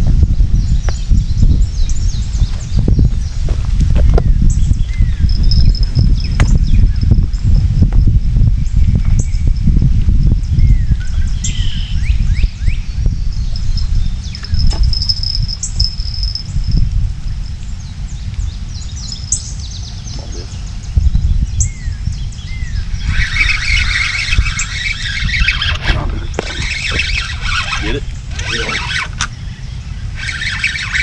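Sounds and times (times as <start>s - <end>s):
wind rumble on microphone: 0.0s - 31.0s
birds chirping and calling: 0.6s - 9.7s, 10.5s - 31.0s
fishing reel drag whirring: 5.0s - 7.4s, 12.6s - 17.6s, 22.4s - 31.0s.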